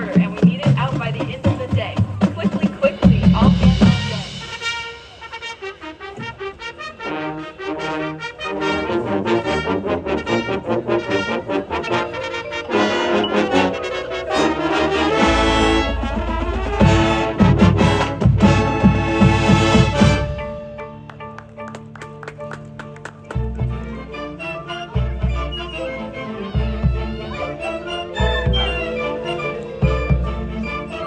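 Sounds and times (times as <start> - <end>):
marching band playing: 0.0 - 31.0
heavy accented drum hits: 15.4 - 20.3.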